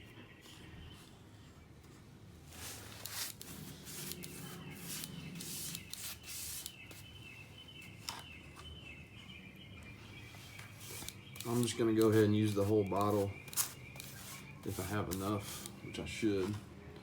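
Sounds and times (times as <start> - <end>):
paintbrush scrubbing concrete: 2.5 - 7.1, 10.4 - 16.6.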